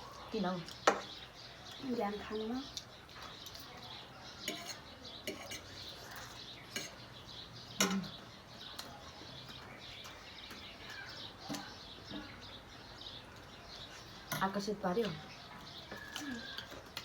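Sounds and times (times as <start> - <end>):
faint bird chirps: 0.0 - 17.0
cutlery clicking on plate: 4.5 - 5.7.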